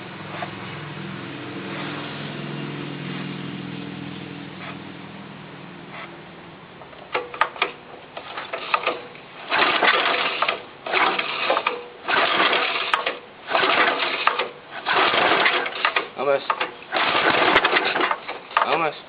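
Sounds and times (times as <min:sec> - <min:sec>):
starter clicks: 0:06.8 - 0:18.9
engine cranking by starter: 0:06.9 - 0:19.0.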